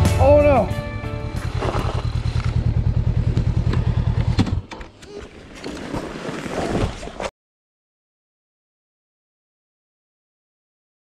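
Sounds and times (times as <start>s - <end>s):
motorcycle engine running: 0.0s - 4.8s.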